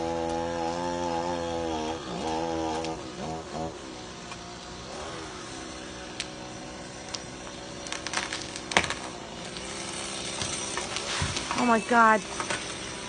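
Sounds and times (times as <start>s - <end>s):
sharp cracks and snaps: 6.1s - 6.4s, 7.0s - 9.8s.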